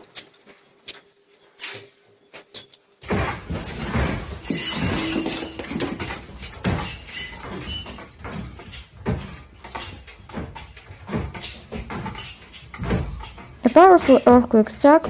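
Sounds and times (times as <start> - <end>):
household objects clattering and banging: 3.0 - 14.2.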